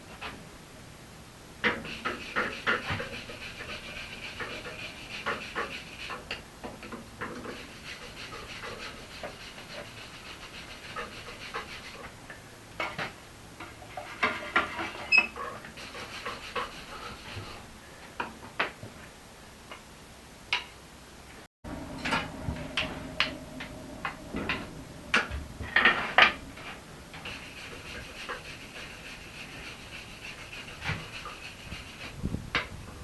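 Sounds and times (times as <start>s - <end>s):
scraping on metal: 1.7s - 6.4s, 7.2s - 12.1s, 13.6s - 17.6s, 24.0s - 33.0s.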